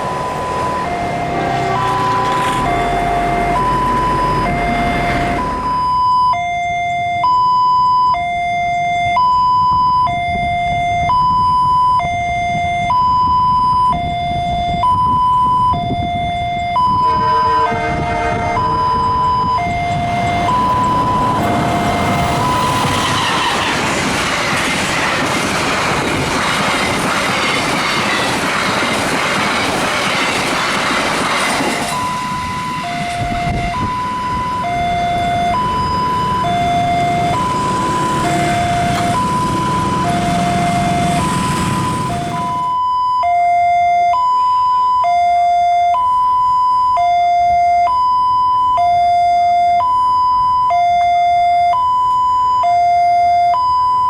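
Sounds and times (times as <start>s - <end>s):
train rail and wheel noise: 0.0s - 5.9s, 15.0s - 42.8s
two-tone crossing alarm: 0.0s - 54.0s.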